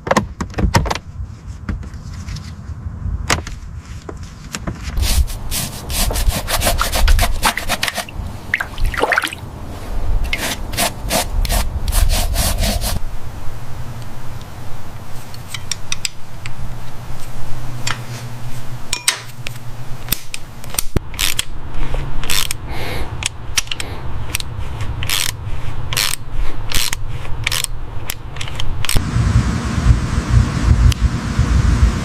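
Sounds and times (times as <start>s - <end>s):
steady low hum: 29.0s - 32.0s.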